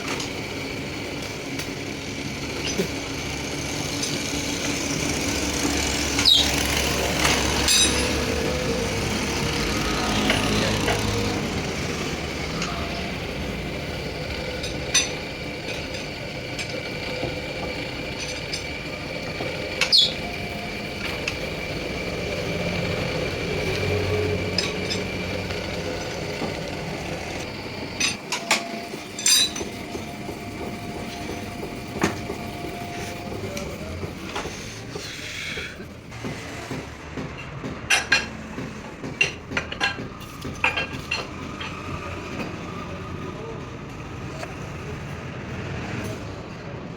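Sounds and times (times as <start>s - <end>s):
workshop machinery running: 0.0s - 46.9s.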